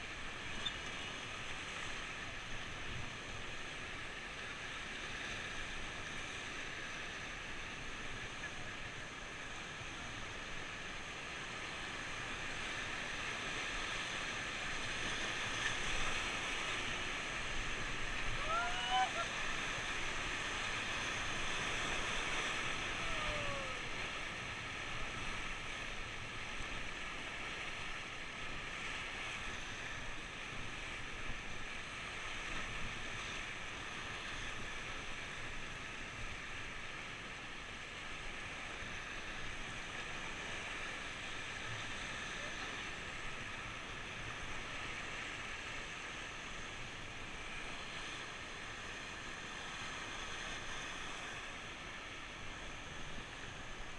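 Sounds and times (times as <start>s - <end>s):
river rapids hissing: 3.2s - 32.5s.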